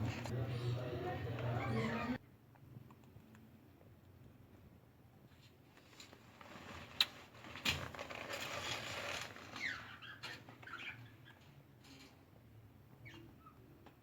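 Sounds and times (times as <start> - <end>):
birds rustling and scratching: 5.3 - 12.3.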